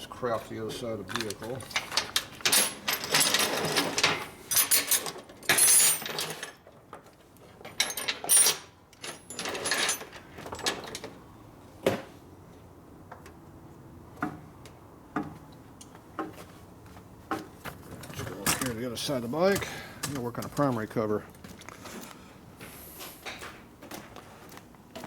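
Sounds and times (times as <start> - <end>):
metal tools clattering: 1.0 - 11.1, 17.9 - 18.8.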